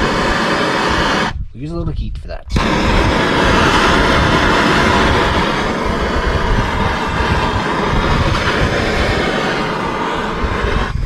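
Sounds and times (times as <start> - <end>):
heat tool rushing noise: 0.0 - 1.4, 2.5 - 11.0.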